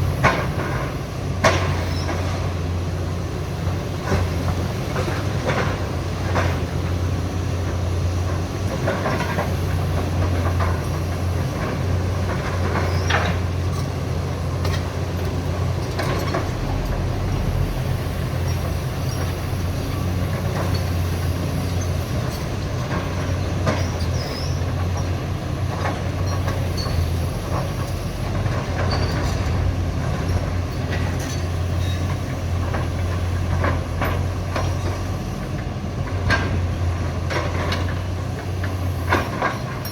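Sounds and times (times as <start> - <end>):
diesel excavator running: 0.0 - 39.9
short metallic squeals: 23.8 - 25.1.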